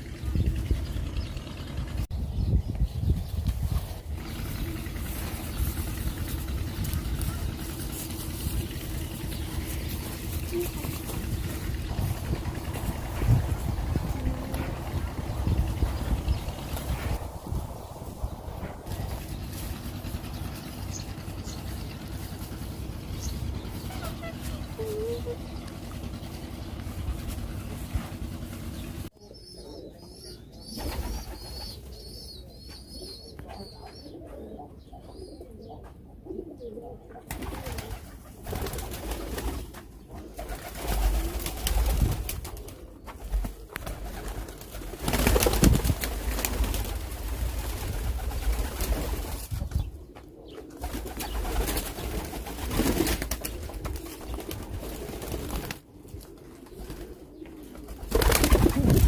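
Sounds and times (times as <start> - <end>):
rumbling microphone noise: 0.0 - 20.2
pigeons cooing: 3.9 - 17.2, 18.6 - 59.0.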